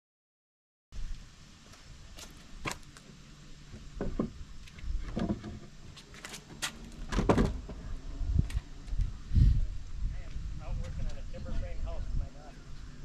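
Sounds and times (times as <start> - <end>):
low rumble: 7.0 - 13.0.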